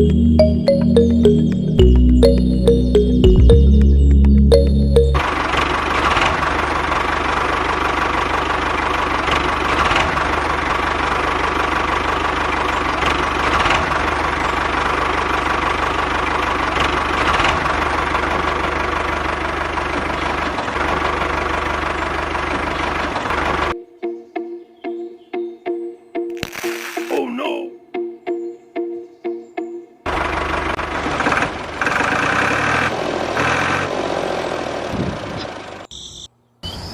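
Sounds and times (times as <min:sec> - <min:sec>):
small tractor engine knocking: 0:05.2 - 0:23.7.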